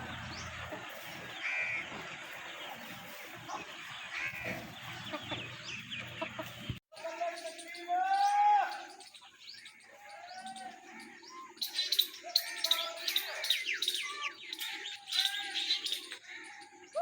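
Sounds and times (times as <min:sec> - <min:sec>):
birds chirping and calling: 0:00.0 - 0:17.0.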